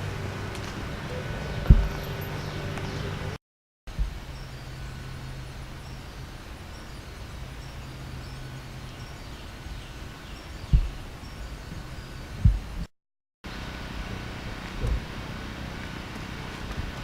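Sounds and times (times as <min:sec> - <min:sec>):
faint birds chirping: 0:00.0 - 0:12.9
steady low hum: 0:00.0 - 0:12.9
dull thump: 0:01.6 - 0:02.2, 0:10.7 - 0:11.0.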